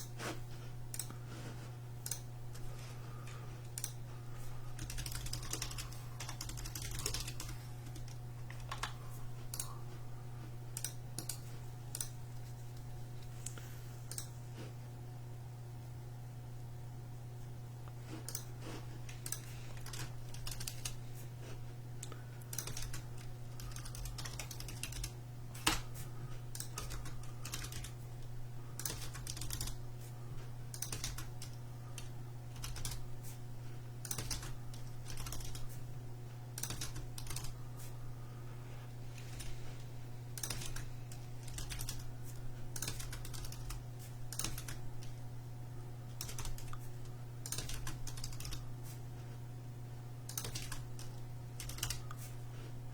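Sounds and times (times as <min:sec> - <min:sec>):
steady low hum: 0:00.0 - 0:52.9
typing on computer keyboard: 0:02.0 - 0:02.6, 0:04.7 - 0:09.7, 0:10.7 - 0:12.2, 0:19.2 - 0:21.0, 0:22.0 - 0:25.8, 0:26.5 - 0:28.0, 0:28.8 - 0:29.8, 0:30.7 - 0:33.0, 0:34.0 - 0:35.8, 0:36.6 - 0:37.6, 0:40.4 - 0:45.2, 0:46.2 - 0:46.8, 0:47.4 - 0:48.6, 0:50.3 - 0:52.2.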